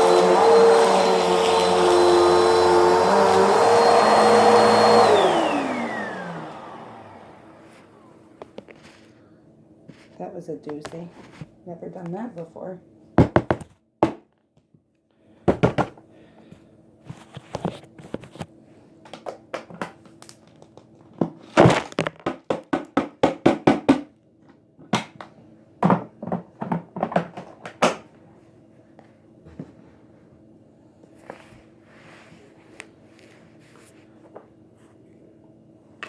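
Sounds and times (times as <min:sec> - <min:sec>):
knocks and thuds: 0:13.2 - 0:14.2, 0:15.5 - 0:16.0.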